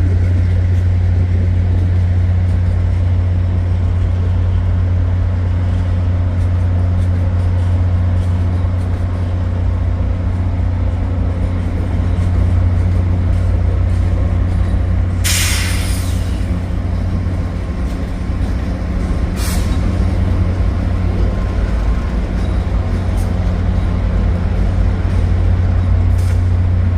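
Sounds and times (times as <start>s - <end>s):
diesel locomotive droning: 0.0s - 26.9s
air brakes hissing: 15.2s - 16.5s, 19.3s - 19.9s.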